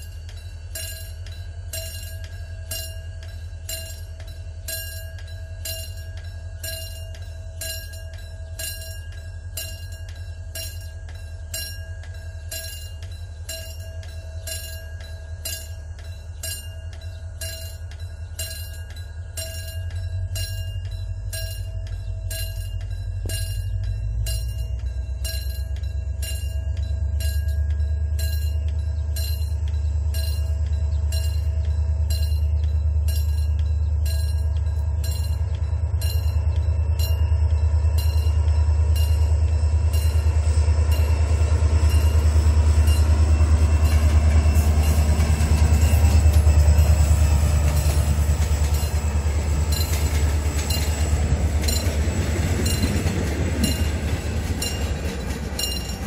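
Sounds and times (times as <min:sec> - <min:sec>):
locomotive engine rumble: 0:00.0 - 0:56.0
train wheel clicks: 0:00.0 - 0:56.0.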